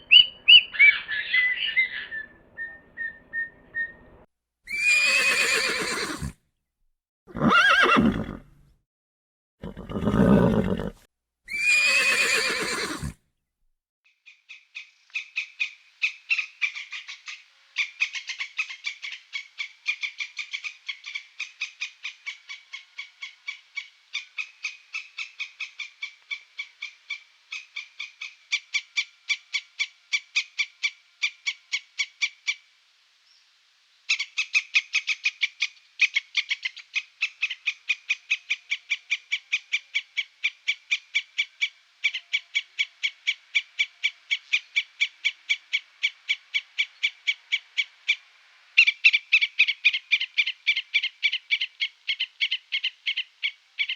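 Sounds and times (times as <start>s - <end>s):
horse whinnying: 4.7s - 6.4s, 7.3s - 8.5s, 9.6s - 13.2s.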